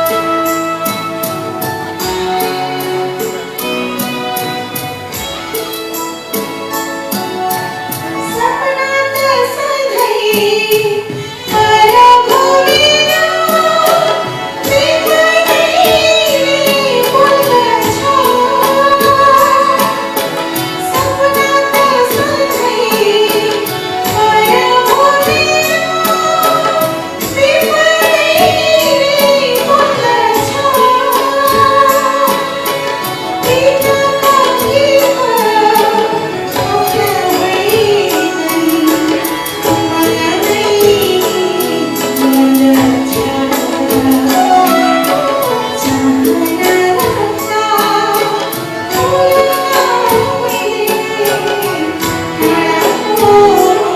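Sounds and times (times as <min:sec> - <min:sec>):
steady percussion beat: 0:00.0 - 0:09.3, 0:10.5 - 0:53.9
live band playing: 0:00.0 - 0:53.9
woman singing: 0:00.0 - 0:53.9.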